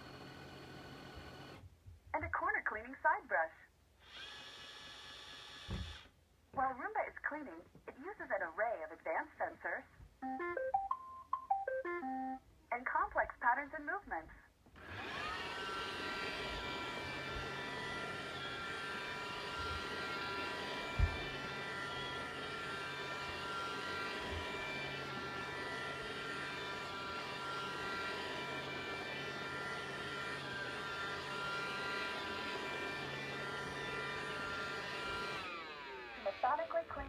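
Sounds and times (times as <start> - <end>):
robot vacuum running: 14.8 - 37.0.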